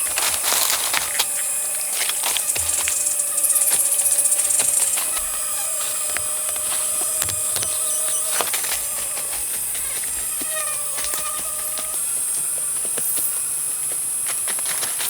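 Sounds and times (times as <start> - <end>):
high-pitched insect drone: 0.0 - 15.0
sharp clicks and knocks: 4.5 - 9.2.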